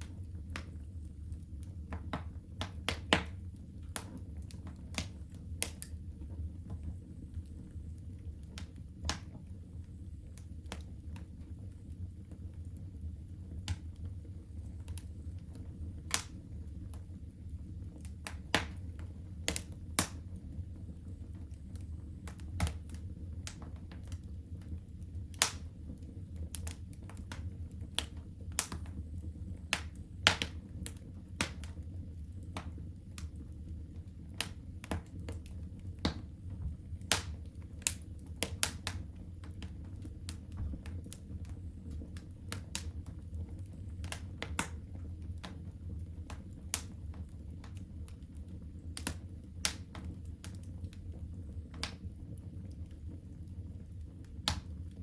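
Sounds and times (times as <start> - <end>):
low rumble of flames: 0.0 - 55.0
wood fire crackling: 0.0 - 55.0
sharp pops and snaps: 1.9 - 6.0, 8.5 - 9.4, 13.6 - 14.1, 14.8 - 17.1, 18.0 - 20.2, 21.4 - 24.7, 25.3 - 25.7, 26.4 - 29.0, 29.7 - 31.8, 37.0 - 44.8, 46.3 - 47.9, 49.0 - 50.7, 51.7 - 52.0, 54.3 - 54.7.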